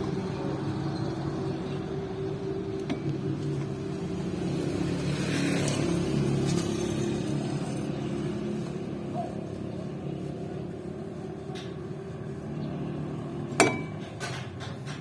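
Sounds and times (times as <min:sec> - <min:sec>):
low mechanical hum: 0:00.0 - 0:15.0
metal tool clinking on metal: 0:13.6 - 0:15.0.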